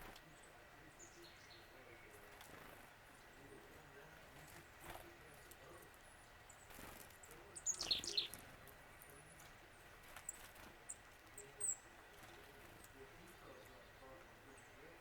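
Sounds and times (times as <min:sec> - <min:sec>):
bird calling: 0:07.5 - 0:08.4.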